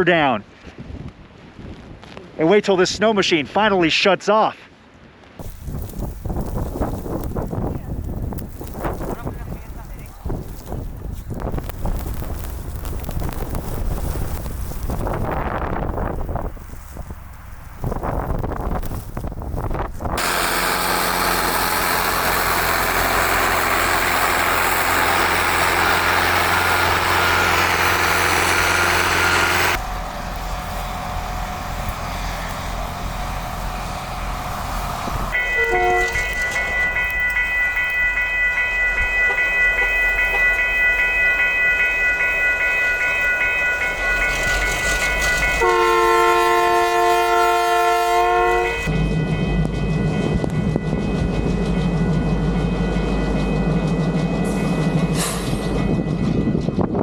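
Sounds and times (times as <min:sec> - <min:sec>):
train rumbling: 0:05.4 - 0:57.0
train horn chord: 0:20.2 - 0:29.8, 0:35.3 - 0:40.6, 0:43.5 - 0:49.0.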